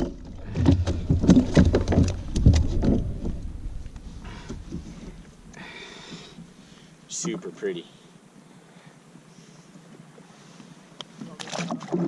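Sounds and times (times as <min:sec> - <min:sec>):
knocks and clatter on kayak: 0:00.0 - 0:06.3, 0:11.3 - 0:12.0.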